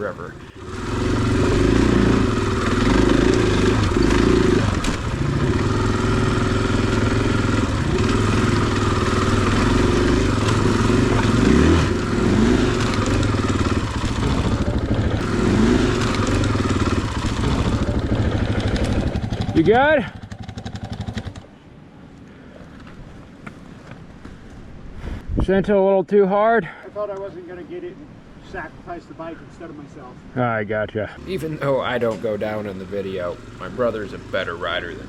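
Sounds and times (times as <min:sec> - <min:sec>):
dirt bike engine revving: 0:00.0 - 0:21.4, 0:31.2 - 0:35.0.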